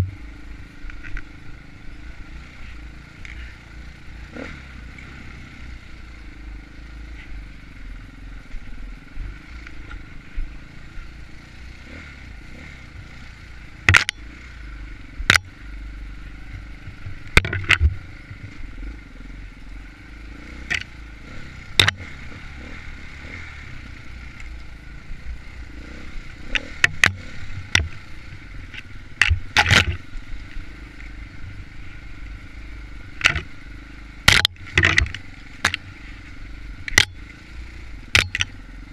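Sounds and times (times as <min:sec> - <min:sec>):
knocks and clatter from bike: 0:00.0 - 0:00.2, 0:13.8 - 0:14.5, 0:15.2 - 0:15.6, 0:16.5 - 0:18.9, 0:20.6 - 0:21.0, 0:21.7 - 0:22.7, 0:26.4 - 0:31.1, 0:33.1 - 0:33.6, 0:34.2 - 0:36.2, 0:36.8 - 0:38.7
dirt bike engine: 0:00.0 - 0:38.9.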